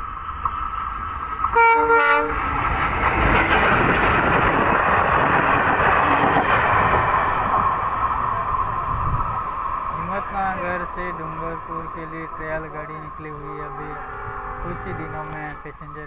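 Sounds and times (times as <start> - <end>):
train rumbling past: 0.0 - 16.0
train horn blast: 1.5 - 2.5, 13.2 - 16.0.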